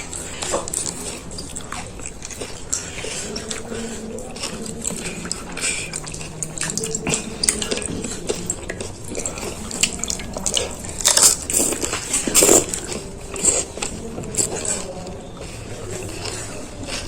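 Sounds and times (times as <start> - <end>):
wet chewing: 0.0 - 17.0
crisp shells crunching: 9.4 - 13.6.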